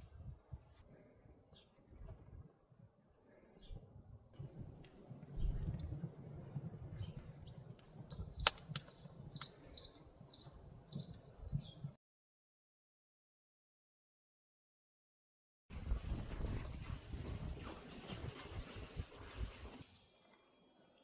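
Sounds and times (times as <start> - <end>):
bird chirps: 8.2 - 12.0.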